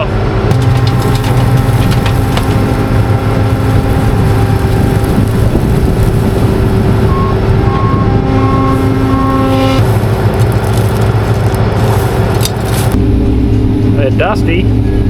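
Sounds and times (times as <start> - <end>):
combine harvester engine hum: 0.0 - 15.0
short beeps: 7.1 - 9.8.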